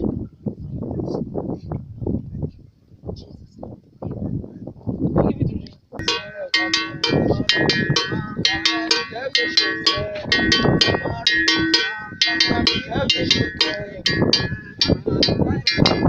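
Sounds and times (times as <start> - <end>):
metal bell struck rhythmically: 6.0 - 16.0.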